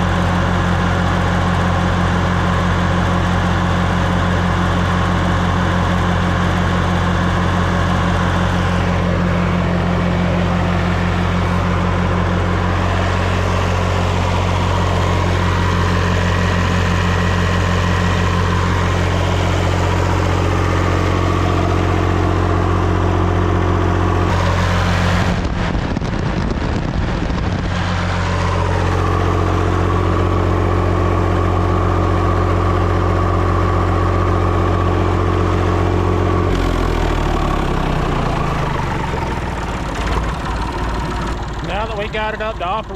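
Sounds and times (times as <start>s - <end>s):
tractor engine idling: 0.0s - 26.5s, 27.2s - 42.9s.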